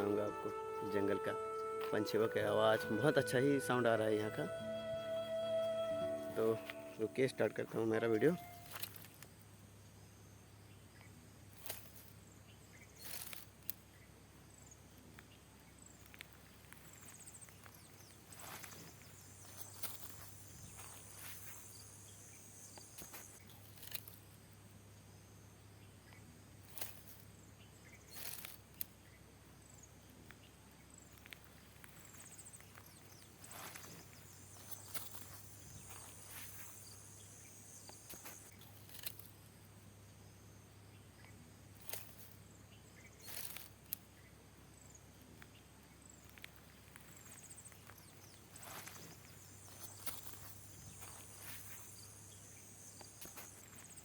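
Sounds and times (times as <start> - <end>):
short high chirps: 0.0 - 8.9
high insect drone: 0.0 - 9.2, 16.9 - 24.2, 32.0 - 39.3, 47.0 - 54.0.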